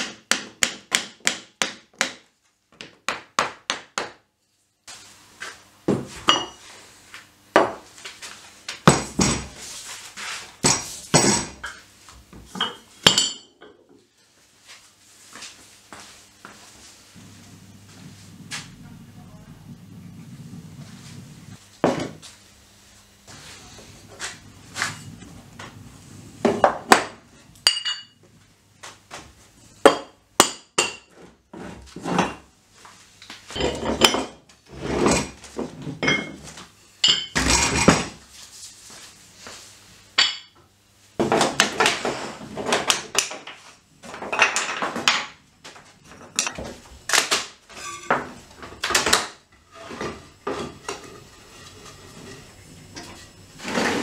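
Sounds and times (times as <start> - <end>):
weight plates clanking: 47.8 - 48.3.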